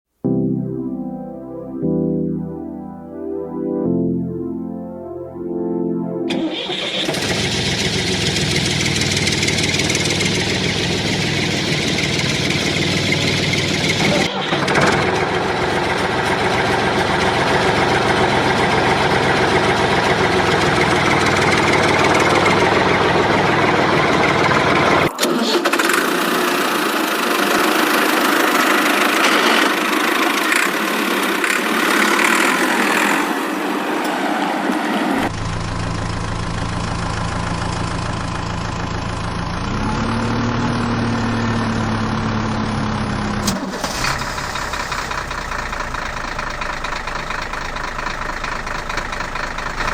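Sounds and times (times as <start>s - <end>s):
vehicle engine running: 6.3s - 25.1s, 26.0s - 33.8s, 35.2s - 49.9s.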